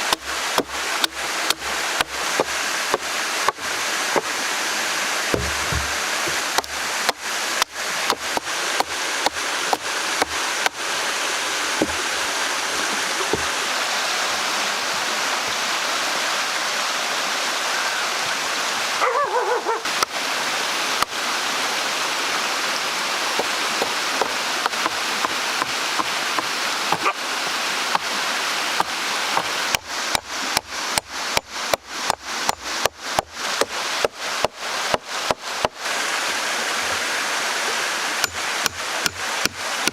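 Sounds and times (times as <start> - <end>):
stream rushing water: 0.0 - 39.9
sharp knocks: 5.3 - 10.8.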